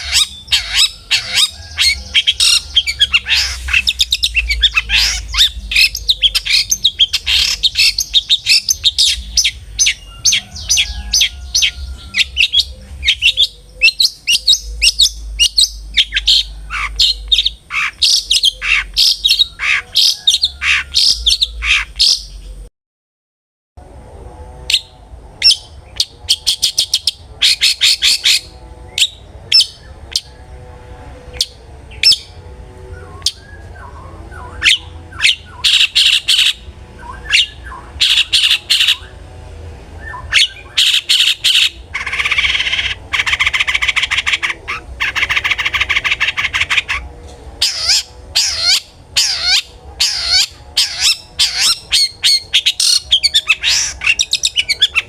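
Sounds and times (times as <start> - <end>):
shrike singing harsh chattering notes: 0.0 - 22.3.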